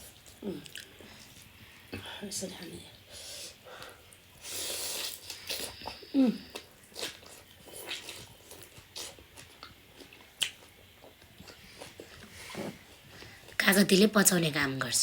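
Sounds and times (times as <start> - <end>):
person chewing: 0.4 - 1.0, 4.5 - 12.3.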